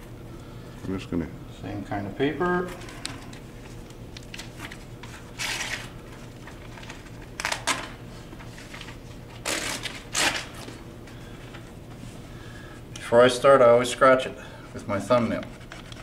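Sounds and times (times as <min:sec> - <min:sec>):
paper crinkling: 0:03.6 - 0:10.8.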